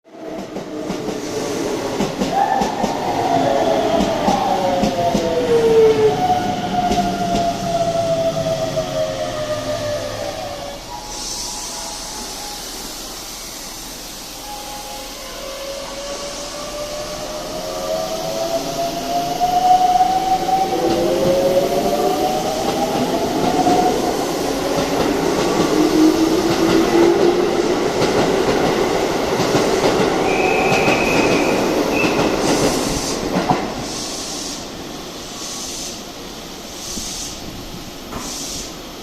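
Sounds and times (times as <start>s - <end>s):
train wheels rumbling on rails: 0.1s - 14.5s, 15.2s - 39.0s
brief high squeal: 10.6s - 13.7s.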